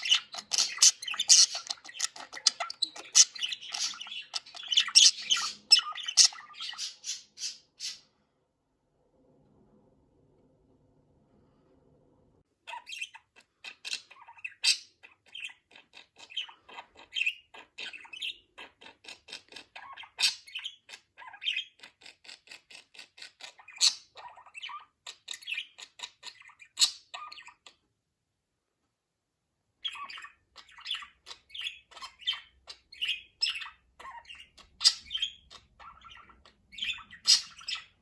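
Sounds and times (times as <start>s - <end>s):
budgerigar chattering: 0.0s - 8.0s, 29.8s - 38.0s.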